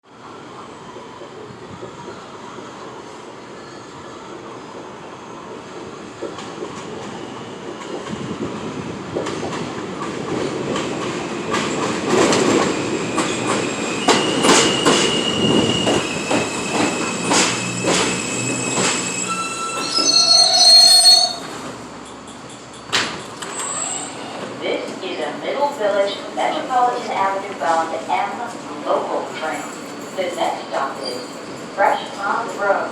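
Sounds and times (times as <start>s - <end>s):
subway train rumble: 0.0s - 32.9s
wheel and brake squeal: 13.1s - 24.4s.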